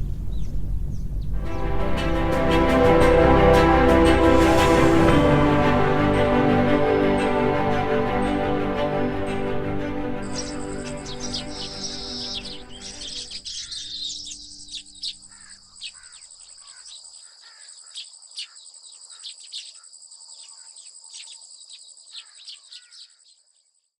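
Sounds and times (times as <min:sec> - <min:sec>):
birds chirping: 0:00.0 - 0:02.8, 0:04.1 - 0:23.9
background music: 0:01.4 - 0:15.2
insects trilling: 0:10.4 - 0:23.9.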